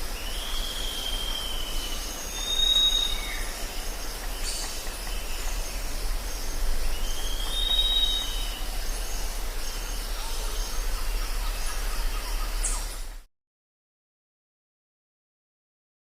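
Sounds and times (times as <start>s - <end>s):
insects hissing: 0.0s - 13.2s
low hum: 3.1s - 13.3s.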